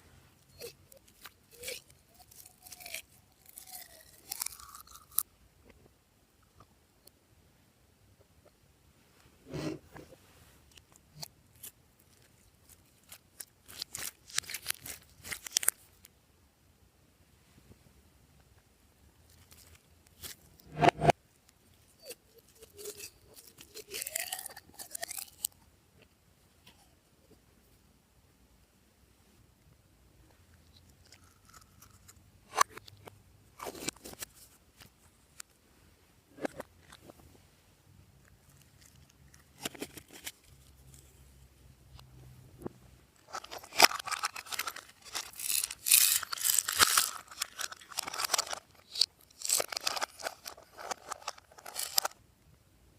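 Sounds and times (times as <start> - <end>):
slime popping and crackling: 43.3 - 52.0.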